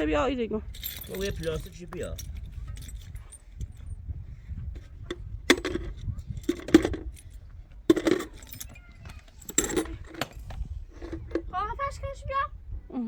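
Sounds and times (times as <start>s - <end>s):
small hard objects clinking: 0.7s - 3.2s, 5.5s - 11.4s.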